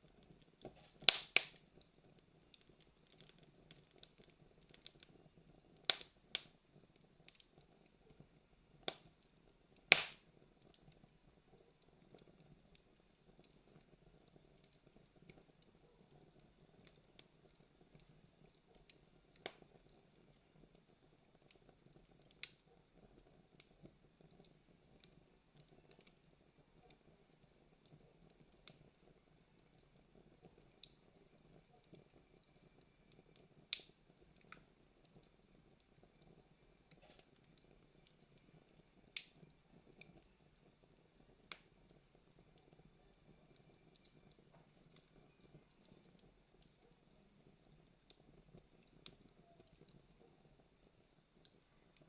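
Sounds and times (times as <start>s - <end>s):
sharp pops from burning wood: 0.0s - 20.8s, 21.4s - 29.2s, 29.8s - 40.5s, 41.3s - 42.9s
campfire crackling: 0.0s - 52.0s.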